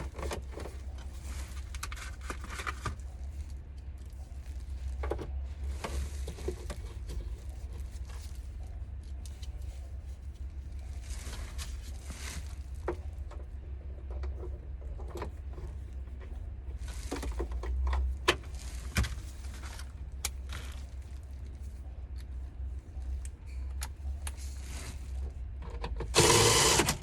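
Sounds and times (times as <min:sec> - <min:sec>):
steady low hum: 0:00.0 - 0:27.0
rustling or brushing: 0:00.4 - 0:12.9, 0:18.4 - 0:23.2, 0:24.4 - 0:25.4.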